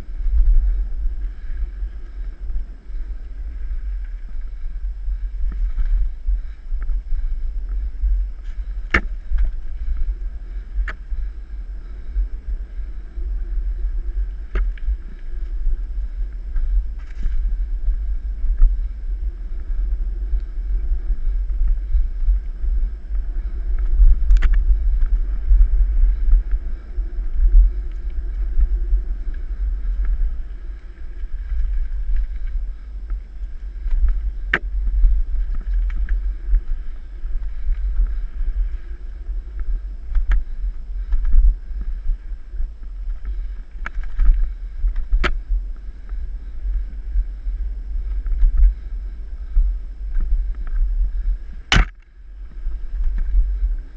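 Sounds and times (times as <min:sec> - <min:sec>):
wind buffeting microphone: 0:00.0 - 0:53.9
bike clicking and rattling: 0:00.1 - 0:49.0.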